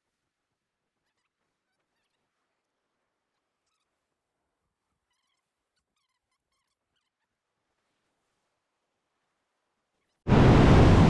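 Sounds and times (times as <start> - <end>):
faint high bird calls: 0.9 - 4.2, 4.8 - 7.5.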